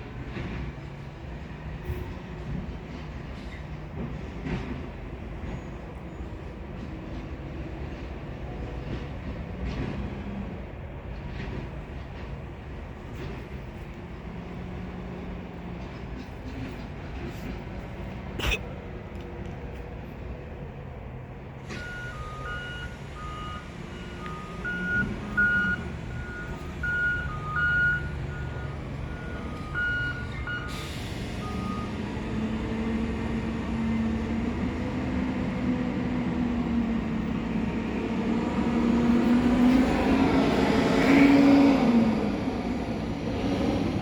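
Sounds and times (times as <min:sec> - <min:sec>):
diesel engine idling and revving: 0:00.0 - 0:44.0
truck backup alarm beeping: 0:21.7 - 0:32.1.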